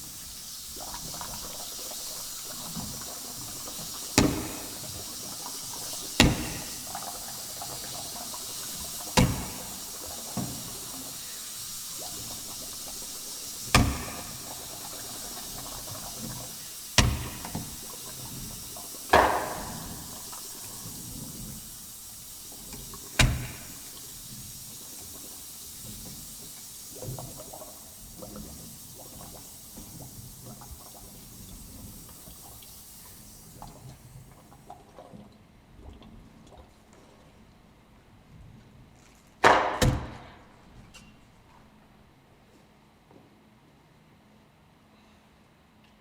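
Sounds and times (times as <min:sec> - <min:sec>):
water running with a hiss: 0:00.0 - 0:35.2
sharp knocks or splashes: 0:04.0 - 0:10.7, 0:13.7 - 0:18.0, 0:19.1 - 0:20.5, 0:23.1 - 0:24.0, 0:39.4 - 0:40.4.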